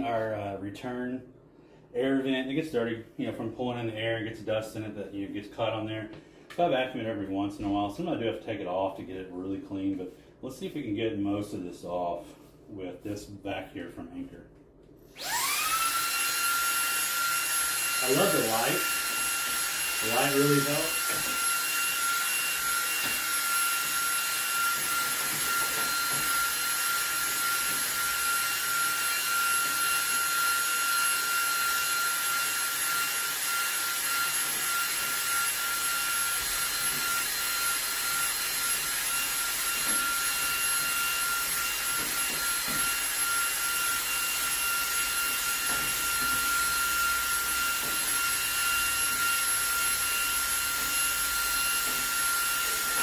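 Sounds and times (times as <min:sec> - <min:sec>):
handheld vacuum running: 0:15.0 - 0:53.0.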